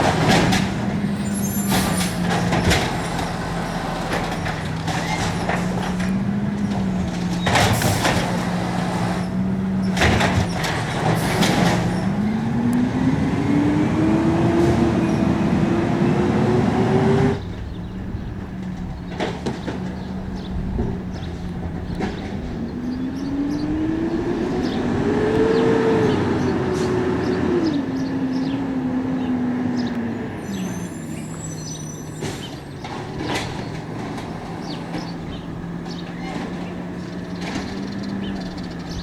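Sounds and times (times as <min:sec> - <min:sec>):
clanks and knocks: 0:00.0 - 0:12.3, 0:17.5 - 0:22.9, 0:32.2 - 0:38.6
truck engine idling and revving: 0:00.0 - 0:39.0.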